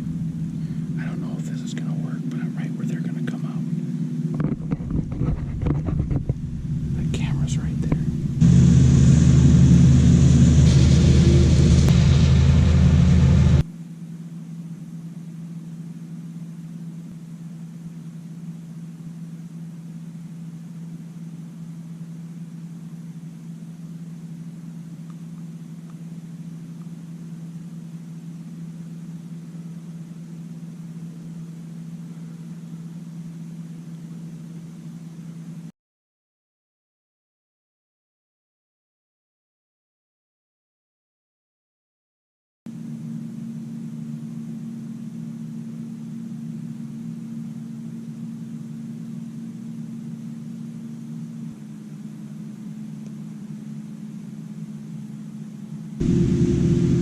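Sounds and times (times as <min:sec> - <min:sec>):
combine harvester engine rumbling: 0:00.0 - 0:13.6, 0:56.0 - 0:57.0.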